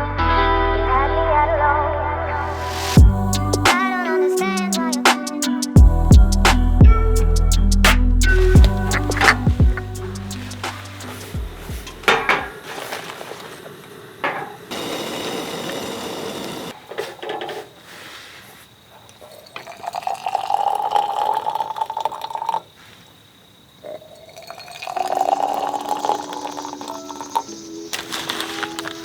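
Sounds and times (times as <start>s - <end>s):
vessel clinking: 19.3s - 22.6s, 24.2s - 29.0s
water pouring into container: 19.5s - 22.7s, 24.3s - 27.5s.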